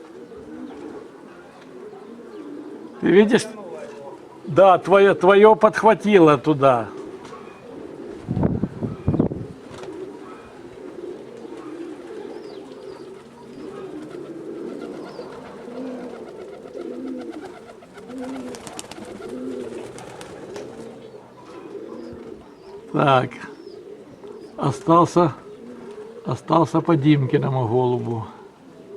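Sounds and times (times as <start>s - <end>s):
pigeons cooing: 0.0s - 28.9s
wind gusting on microphone: 7.1s - 11.0s.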